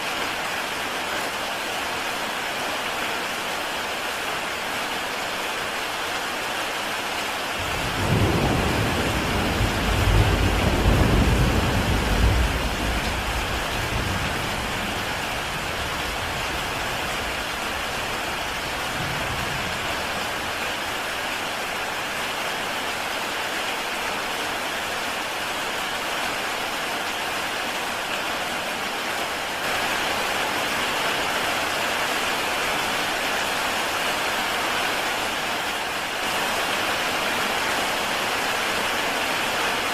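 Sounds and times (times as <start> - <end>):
heavy rain on a tile roof: 0.0 - 39.9
thunder rumbling: 7.6 - 20.6.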